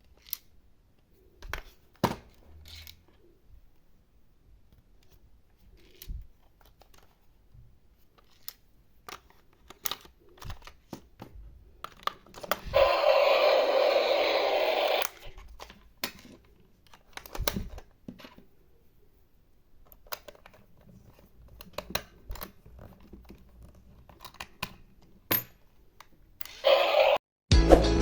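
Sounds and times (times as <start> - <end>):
steady whirring: 12.7 - 15.1.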